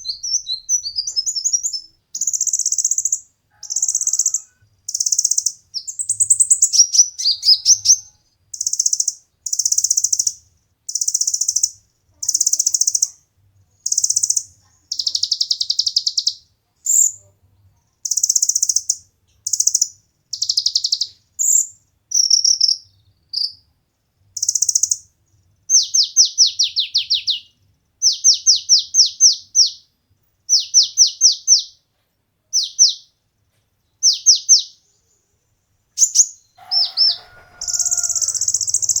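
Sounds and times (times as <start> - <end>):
bird chirping: 0.0 - 13.2, 13.8 - 17.3, 18.0 - 23.7, 24.3 - 31.8, 32.5 - 33.2, 33.9 - 39.0
falling whistled bird notes: 36.0 - 39.0.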